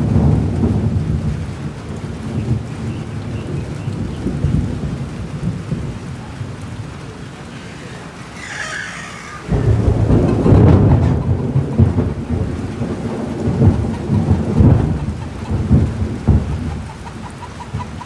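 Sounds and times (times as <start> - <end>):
steady rain falling: 0.0 - 18.0
thunder rumbling: 3.6 - 18.0.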